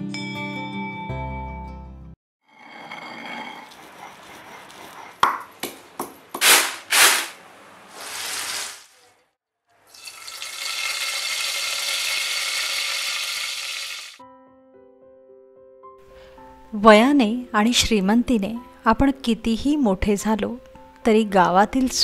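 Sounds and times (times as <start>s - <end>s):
food sizzling in hot oil: 7.9s - 9.0s, 9.9s - 14.2s.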